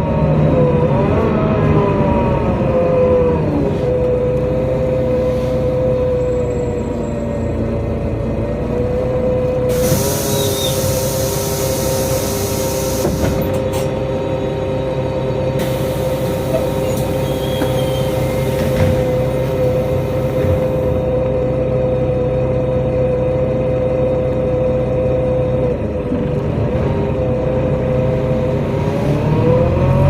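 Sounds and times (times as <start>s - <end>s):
bus engine whine: 0.0s - 30.0s
loud hiss: 9.7s - 13.4s, 15.6s - 20.9s.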